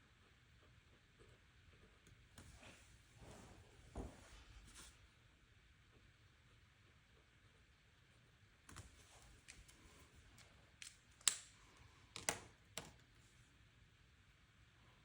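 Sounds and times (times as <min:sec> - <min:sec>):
pens clicking and tapping: 0:08.7 - 0:09.8, 0:10.4 - 0:11.5, 0:12.1 - 0:13.0
paper and sticker sheets handled: 0:08.7 - 0:13.3.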